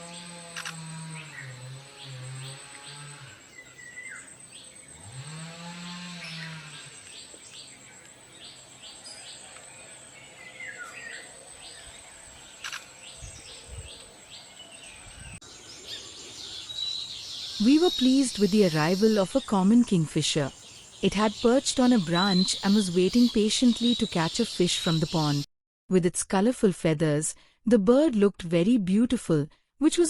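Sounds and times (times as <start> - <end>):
small birds chirping: 6.1 - 25.5.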